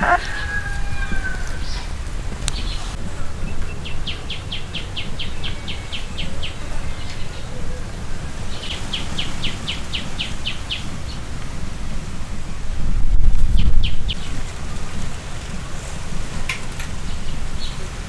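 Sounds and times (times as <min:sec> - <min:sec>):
low outdoor rumble: 0:00.0 - 0:18.0
small bird singing: 0:01.2 - 0:11.3.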